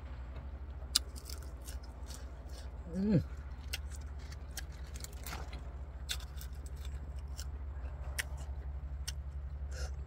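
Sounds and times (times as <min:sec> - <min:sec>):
steady low hum: 0:00.0 - 0:10.0
crunching raw vegetables: 0:00.8 - 0:10.0.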